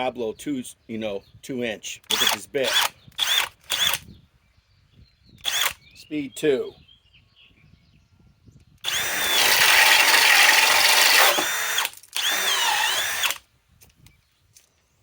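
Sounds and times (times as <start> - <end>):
cordless drill motor whining: 2.1 - 4.2, 5.4 - 5.8, 8.8 - 13.4.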